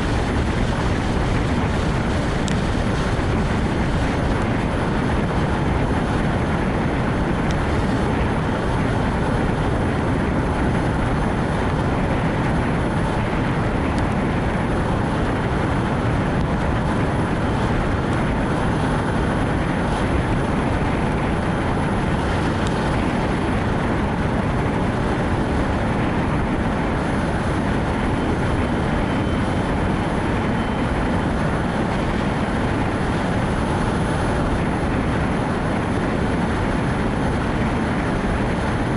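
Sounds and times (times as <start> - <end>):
tyres hissing on wet road: 0.0 - 29.2
rain: 0.0 - 38.9
wind noise: 0.0 - 38.9.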